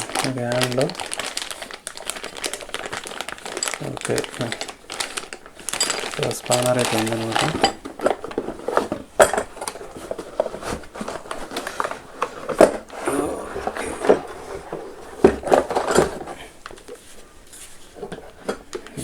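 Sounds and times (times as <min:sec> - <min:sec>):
metal tool parts clinking: 0:03.5 - 0:08.2.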